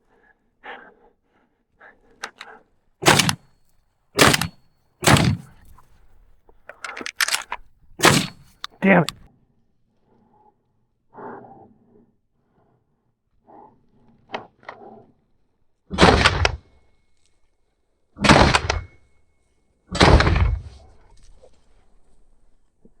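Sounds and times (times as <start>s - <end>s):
shotgun shots with echo: 3.0s - 3.4s, 4.2s - 5.6s, 6.8s - 9.2s.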